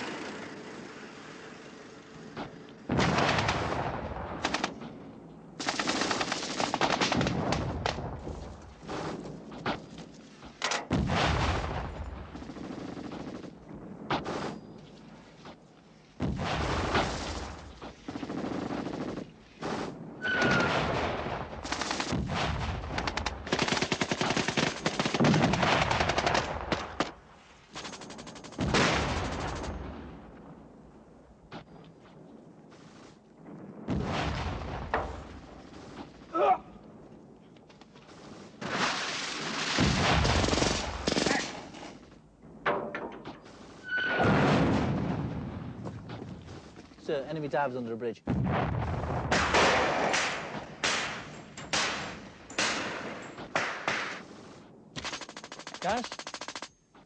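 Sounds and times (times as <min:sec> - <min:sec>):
machine-gun and rifle fire: 0:02.9 - 0:04.8, 0:05.6 - 0:09.1, 0:10.8 - 0:14.6, 0:16.2 - 0:29.9, 0:38.3 - 0:42.0, 0:49.2 - 0:56.7.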